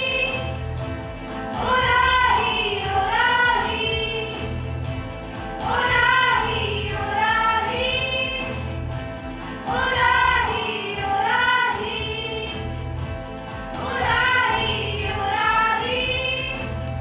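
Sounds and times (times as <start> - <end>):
children singing a hymn: 0.0 - 0.5, 1.1 - 4.6, 5.6 - 8.7, 9.3 - 12.6, 13.8 - 16.8
musical accompaniment: 0.0 - 17.0.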